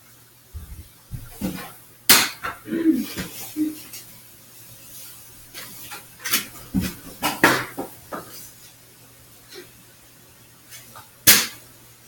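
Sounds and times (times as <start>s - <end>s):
darts striking: 1.2s - 2.6s, 11.3s - 11.6s.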